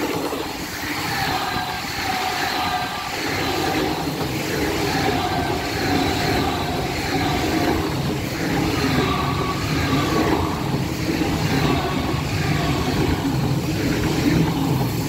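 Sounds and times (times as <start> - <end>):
train wheels rushing on rail: 0.0 - 15.0.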